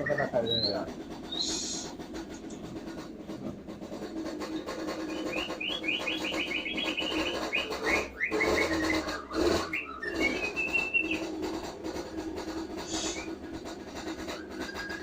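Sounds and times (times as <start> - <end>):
bird whistled note: 0.0 - 1.9, 5.0 - 11.3, 12.8 - 13.4, 14.2 - 15.0
songbird chirping: 0.0 - 2.0, 4.8 - 11.5, 12.8 - 15.0.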